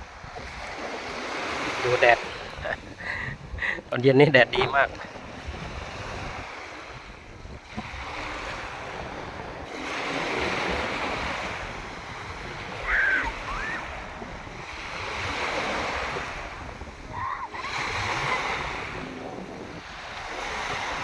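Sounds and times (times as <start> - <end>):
sea waves washing onto beach: 0.0 - 21.0
wind on microphone: 0.0 - 21.0
brief high cry: 12.8 - 13.8.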